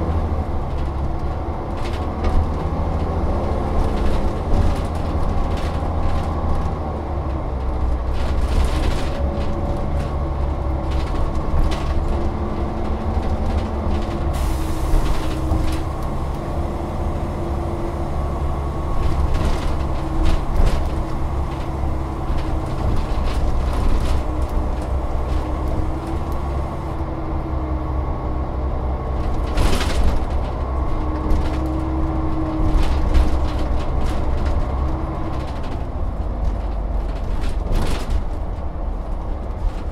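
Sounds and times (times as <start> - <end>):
bus body rattles and clicks: 0.0 - 39.9
bus diesel engine drone: 0.0 - 39.9
short burst of hiss: 14.4 - 15.3.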